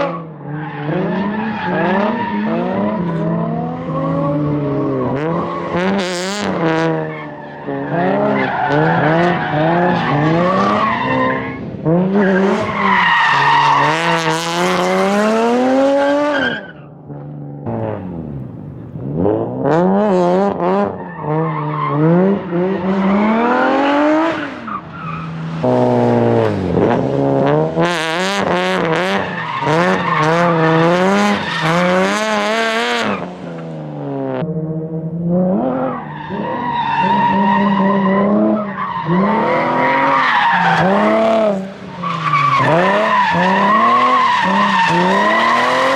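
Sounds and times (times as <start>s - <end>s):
tyre squeal and skidding: 0.0s - 5.8s, 6.4s - 16.9s, 20.8s - 25.8s, 28.4s - 33.6s, 35.6s - 45.9s
car engine revving hard: 25.5s - 45.9s.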